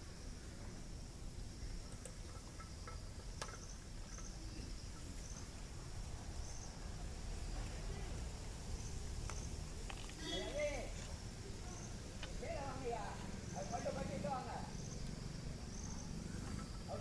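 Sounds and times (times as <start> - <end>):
insect chirping trill: 0.1 - 6.8, 11.6 - 17.0.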